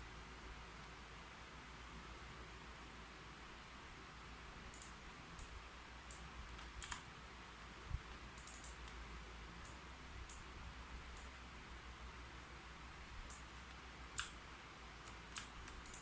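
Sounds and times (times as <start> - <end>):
faint steady hiss: 0.0 - 16.0
keyboard keys clicking: 8.4 - 9.0, 15.0 - 16.0.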